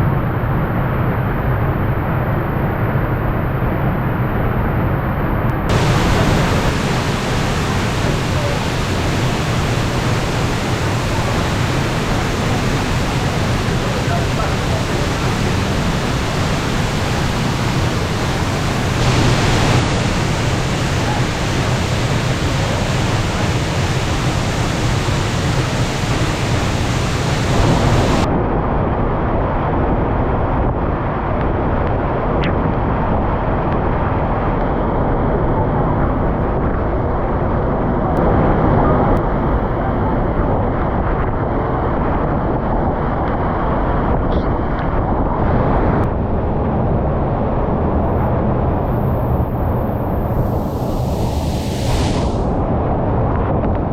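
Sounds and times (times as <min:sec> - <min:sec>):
waterfall rushing: 0:05.7 - 0:28.3, 0:48.9 - 0:52.6.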